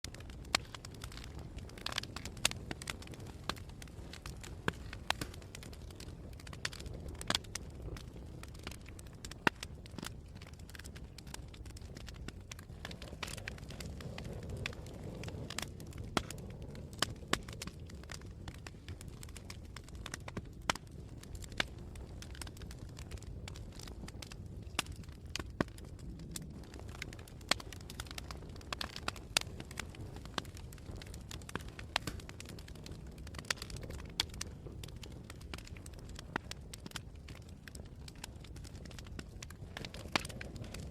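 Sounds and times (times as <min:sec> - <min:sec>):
campfire crackling: 0:00.0 - 0:40.9
flames rumbling: 0:00.0 - 0:40.9.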